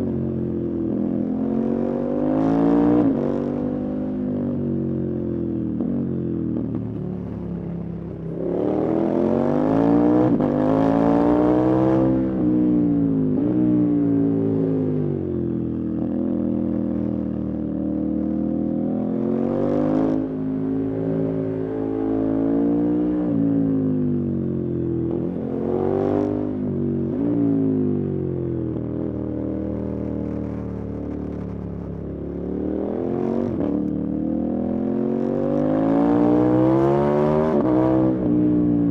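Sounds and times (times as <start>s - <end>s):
motorcycle engine revving: 25.1s - 38.4s.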